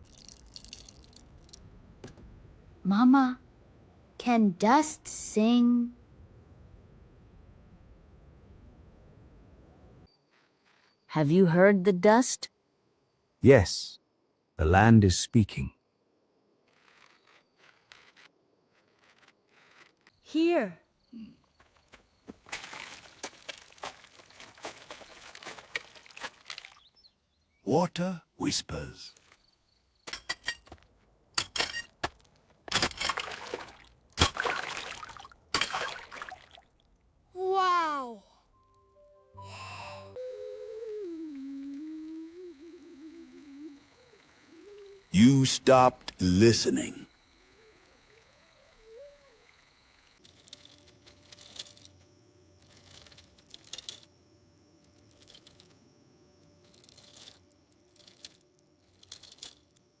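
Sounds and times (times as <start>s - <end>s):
water pouring: 0.0s - 1.2s, 33.1s - 36.7s
water splashing and trickling: 0.0s - 1.6s, 22.4s - 27.0s, 32.8s - 37.0s
faint rustling and crackling: 10.1s - 11.1s, 16.5s - 20.3s, 50.0s - 54.1s, 56.4s - 59.9s
small clicks: 56.6s - 59.9s.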